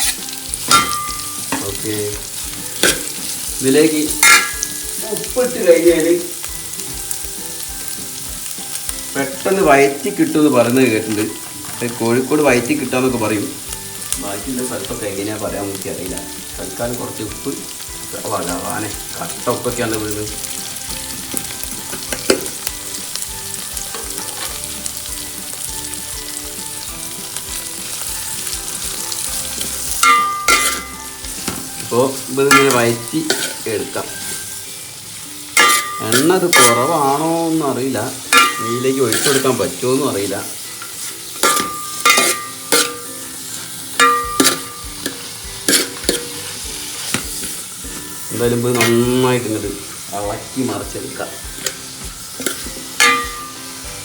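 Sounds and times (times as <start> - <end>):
spoon scraping a pot: 0.0 - 3.6, 28.9 - 34.6, 35.6 - 37.2, 38.3 - 39.8, 40.8 - 49.0, 52.4 - 53.6
onions sizzling in oil: 0.0 - 54.0
spoon scraping a pan: 0.0 - 54.0.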